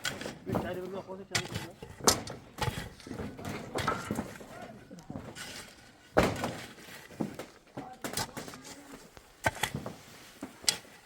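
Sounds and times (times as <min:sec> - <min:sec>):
knocks and thuds: 0:06.1 - 0:06.6.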